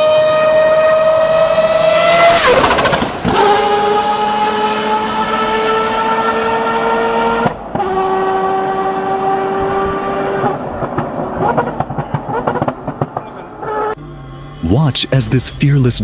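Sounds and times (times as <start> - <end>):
race car engine screaming: 0.0 - 16.0.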